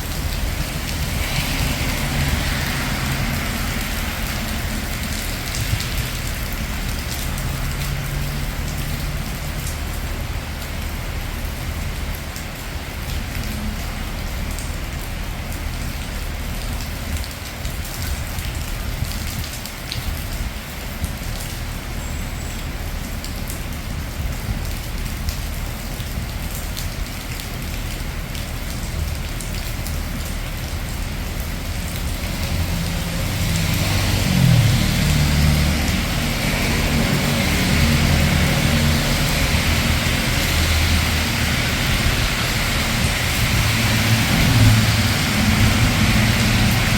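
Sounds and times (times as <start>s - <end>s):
vehicle approaching: 0.0s - 11.4s, 30.9s - 46.9s
low traffic rumble: 0.0s - 46.9s
rain falling on streets: 0.0s - 46.9s.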